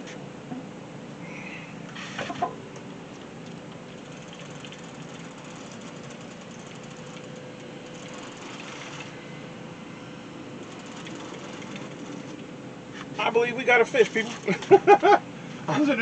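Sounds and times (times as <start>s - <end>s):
fishing reel whirring: 3.9s - 9.2s, 10.6s - 12.4s.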